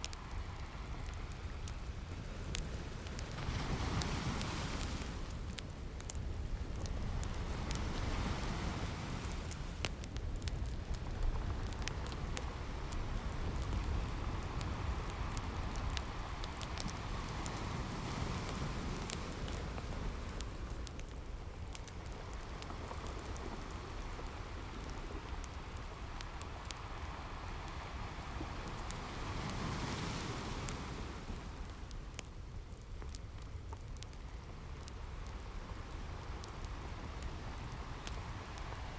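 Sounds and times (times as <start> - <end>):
wood fire crackling: 0.0 - 38.9
ocean surf washing in: 2.8 - 5.5, 7.2 - 9.8, 26.8 - 31.9.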